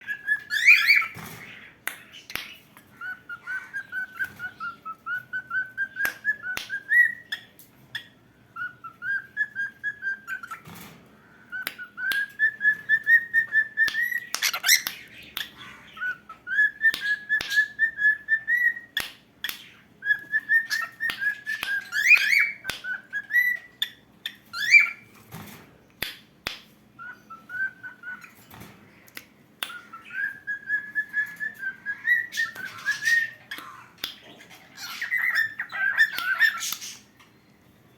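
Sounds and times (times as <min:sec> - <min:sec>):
cockatiel whistling: 0:00.0 - 0:01.2, 0:03.0 - 0:07.4, 0:08.6 - 0:10.6, 0:11.5 - 0:14.9, 0:16.0 - 0:19.0, 0:20.0 - 0:23.7, 0:24.5 - 0:25.1, 0:27.0 - 0:28.4, 0:29.6 - 0:33.5, 0:34.8 - 0:37.0.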